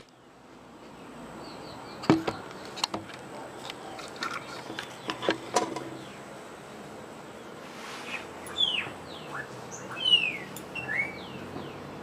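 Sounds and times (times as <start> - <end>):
bird whistles: 8.0 - 11.8.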